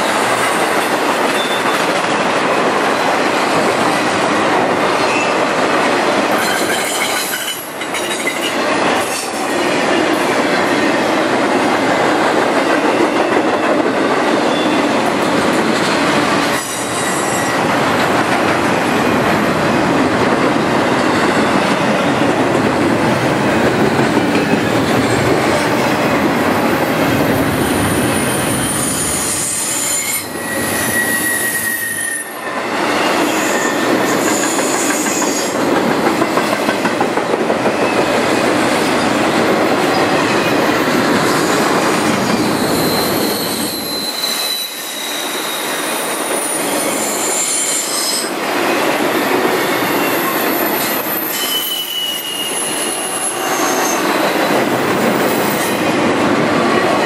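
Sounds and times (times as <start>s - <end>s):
freight train wheels rumbling on rails: 0.0s - 57.0s
high wheel squeals: 27.6s - 32.4s, 42.3s - 48.3s, 50.7s - 54.6s.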